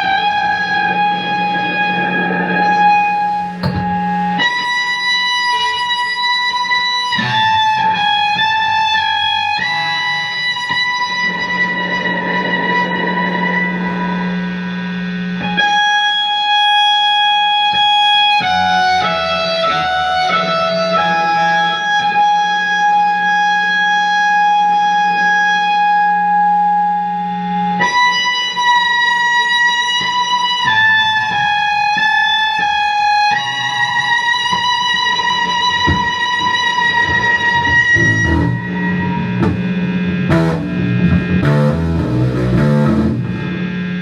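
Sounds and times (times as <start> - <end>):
guitar: 0.0 - 44.0
electric violin held notes: 35.4 - 44.0
low drone: 38.0 - 44.0.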